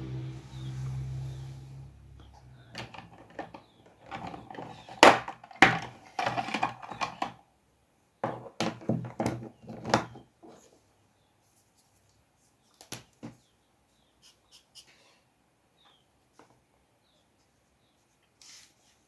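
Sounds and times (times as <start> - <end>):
low hum: 0.0 - 2.8
irregular knocks and clatters: 2.7 - 7.4.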